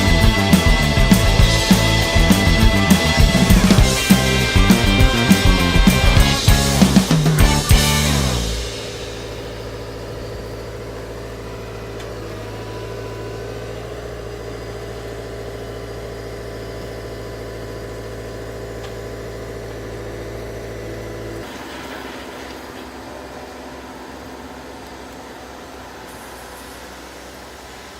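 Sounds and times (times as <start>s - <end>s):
diesel engine running: 0.0s - 27.9s.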